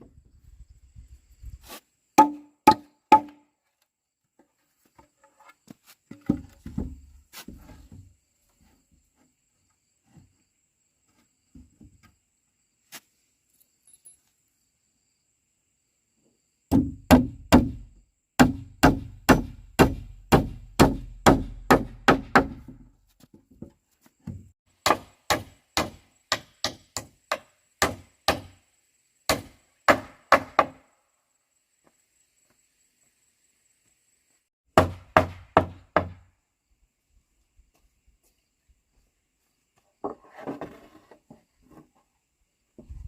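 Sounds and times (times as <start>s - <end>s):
tool striking wood: 2.2s - 3.4s, 16.7s - 17.8s, 18.4s - 22.9s, 24.3s - 28.6s, 34.8s - 36.2s.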